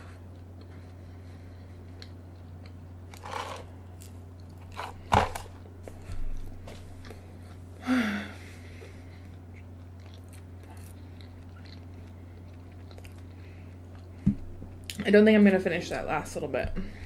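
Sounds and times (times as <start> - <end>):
steady low hum: 0.0 - 17.0
crunchy bites and chewing: 9.2 - 14.2.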